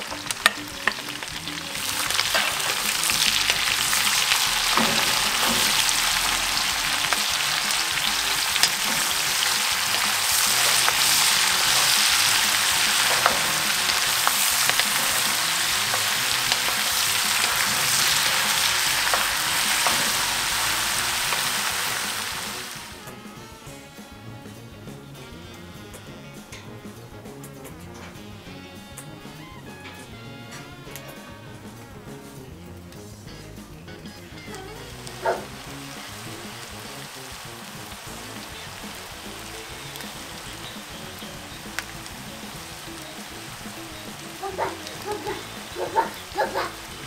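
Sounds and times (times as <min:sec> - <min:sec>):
meat and onions sizzling: 0:00.0 - 0:47.0
wooden spoon stirring: 0:00.1 - 0:22.2.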